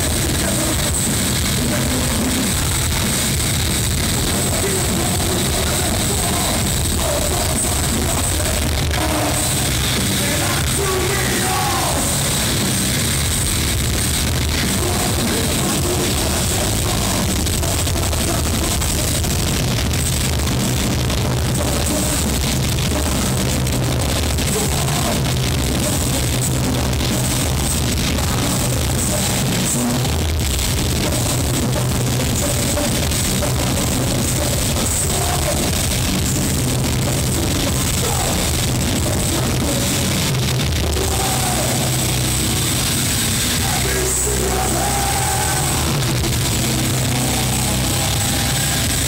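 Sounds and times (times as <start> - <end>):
heavy metal band playing live: 0.0 - 49.0.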